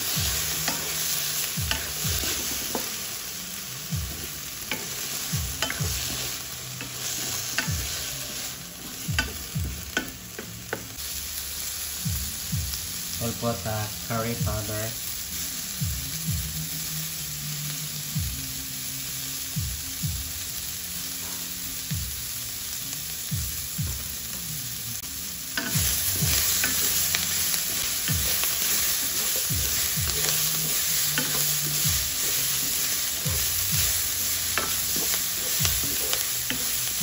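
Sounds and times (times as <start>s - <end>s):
spatula scraping wok: 0.0s - 3.3s, 4.0s - 10.0s, 25.5s - 37.0s
vegetables sizzling in oil: 0.0s - 37.0s.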